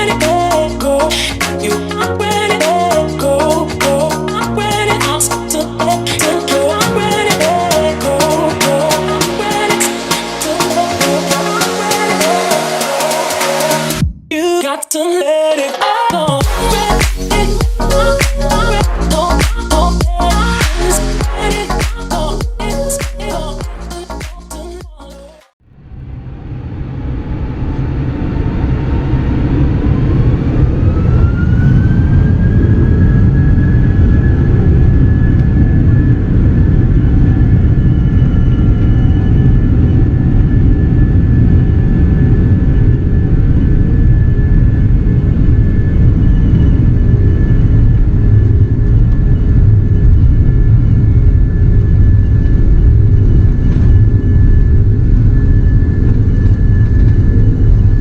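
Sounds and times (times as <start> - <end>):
jet engines spooling up: 0.0 - 14.0, 25.7 - 58.0.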